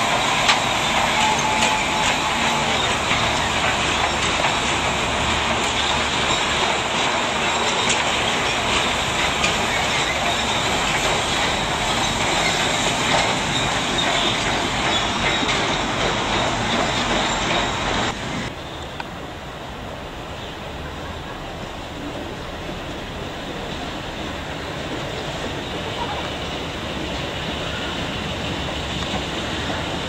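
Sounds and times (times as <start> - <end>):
rail joint clicks: 0.0 - 19.4, 20.0 - 30.0
train wheels rumbling on rails: 0.0 - 30.0.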